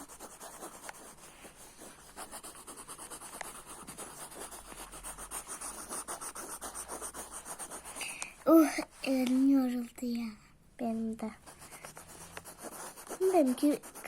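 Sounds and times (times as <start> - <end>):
pen scribbling on paper: 0.0 - 8.2, 11.4 - 14.0.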